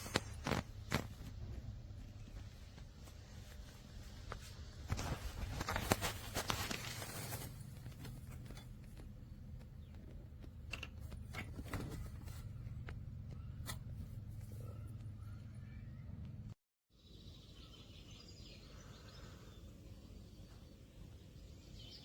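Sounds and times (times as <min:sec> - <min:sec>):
rustling and scraping: 0:00.0 - 0:15.1
low steady hum: 0:00.0 - 0:16.6.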